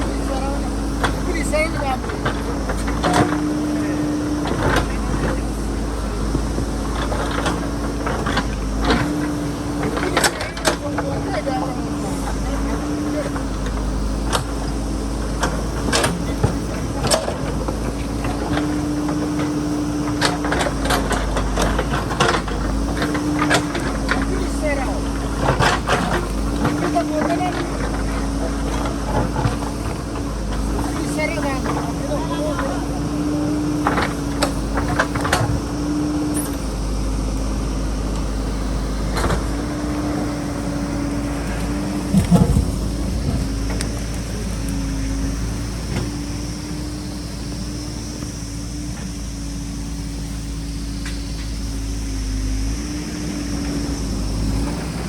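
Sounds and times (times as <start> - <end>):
diesel engine running: 0.0 - 55.0
steady whine: 33.8 - 54.9.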